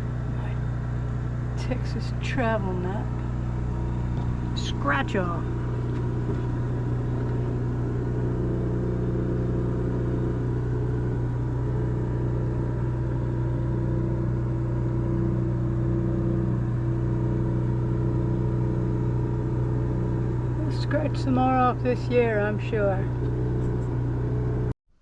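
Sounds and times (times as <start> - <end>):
steady mechanical hum: 0.0 - 24.7.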